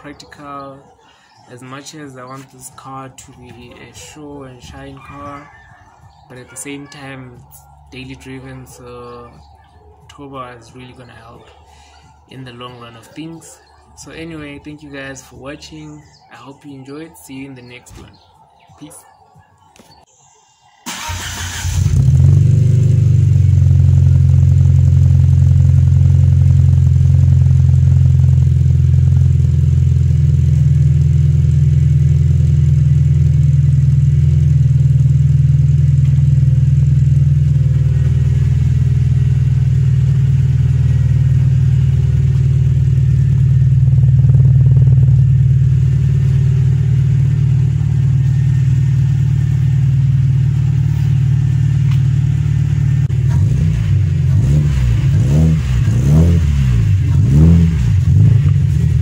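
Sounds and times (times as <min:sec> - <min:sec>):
car engine idling and revving: 0:20.9 - 0:59.0.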